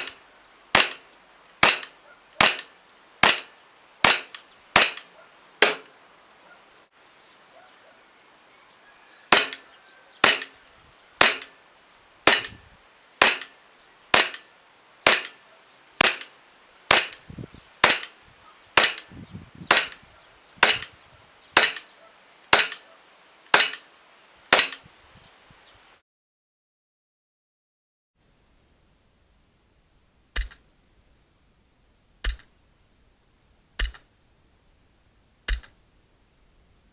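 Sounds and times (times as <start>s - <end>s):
airsoft pistol shots cracking: 0.0s - 5.9s, 9.3s - 9.6s, 10.2s - 10.6s, 11.2s - 11.6s, 12.3s - 12.6s, 13.2s - 15.4s, 16.0s - 18.2s, 18.8s - 19.1s, 19.7s - 20.0s, 20.6s - 20.9s, 21.6s - 21.9s, 22.5s - 22.9s, 23.5s - 23.9s, 24.5s - 24.8s, 30.4s - 30.6s, 32.2s - 32.5s, 33.8s - 34.1s, 35.5s - 35.8s.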